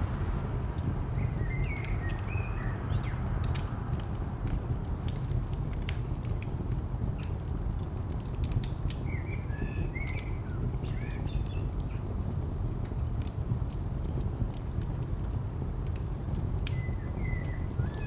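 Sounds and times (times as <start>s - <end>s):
distant traffic rumble: 0.0s - 18.0s
wood fire crackling: 0.0s - 18.0s
bird chirps: 1.2s - 3.4s.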